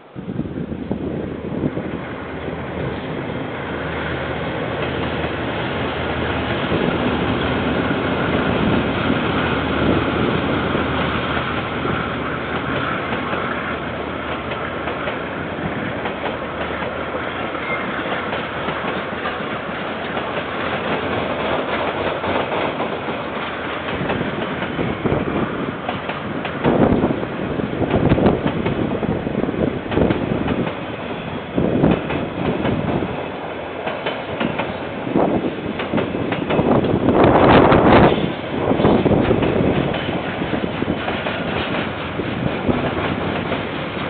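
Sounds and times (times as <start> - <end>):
train wagons rumbling on rails: 0.0 - 44.0.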